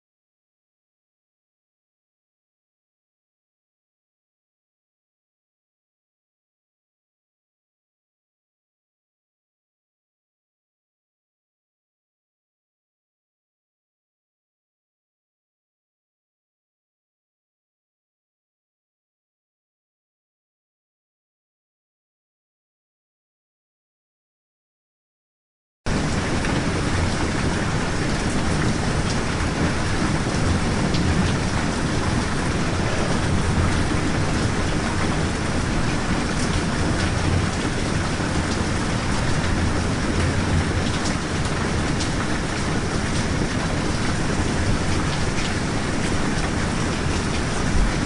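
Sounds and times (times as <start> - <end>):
heavy rain: 25.9 - 48.0.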